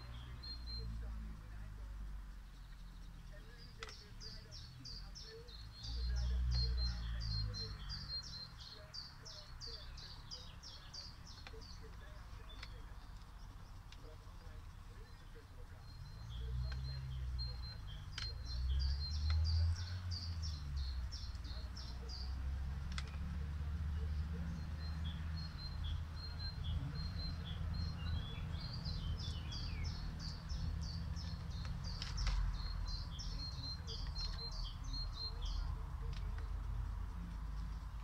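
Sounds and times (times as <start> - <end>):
songbirds chirping and trilling: 0.0 - 38.0
faint clicks: 1.8 - 5.8, 9.0 - 15.2, 21.1 - 23.4, 31.1 - 35.0.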